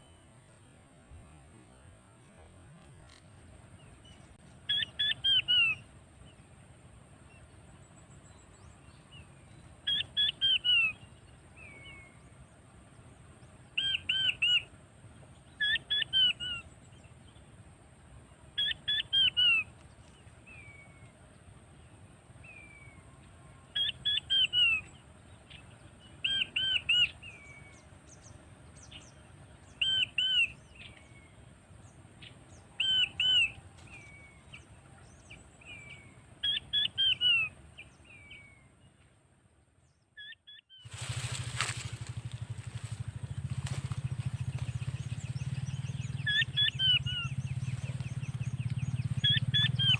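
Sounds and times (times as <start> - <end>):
quail whistled calls: 4.7 - 5.9, 9.8 - 11.0, 13.8 - 14.7, 15.6 - 16.6, 18.6 - 19.7, 23.7 - 24.9, 26.2 - 27.8, 29.7 - 31.0, 32.7 - 34.6, 35.6 - 38.6, 40.2 - 49.9.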